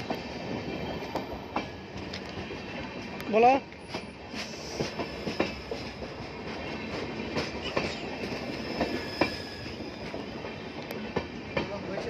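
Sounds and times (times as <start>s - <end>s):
train wheels clattering over rails: 0.0s - 12.0s
high squeal of wheel on rail: 3.8s - 5.9s, 7.6s - 10.6s.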